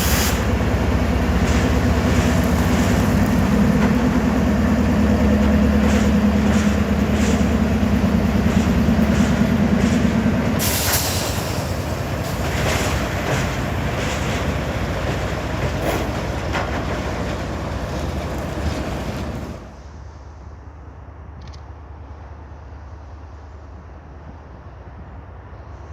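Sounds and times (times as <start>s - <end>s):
train engine drone: 0.0s - 25.9s
wheels clicking over rail joints: 0.4s - 19.6s.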